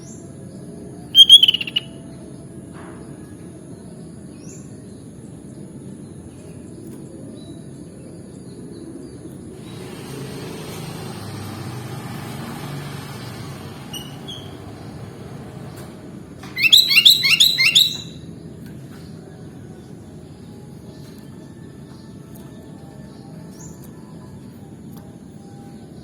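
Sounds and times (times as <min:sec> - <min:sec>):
low background noise: 0:00.0 - 0:09.6, 0:14.6 - 0:26.0
faint high chirps: 0:01.2 - 0:01.9, 0:16.5 - 0:18.2
bulbul song: 0:01.2 - 0:02.0, 0:16.5 - 0:18.2
hiss: 0:09.6 - 0:11.5.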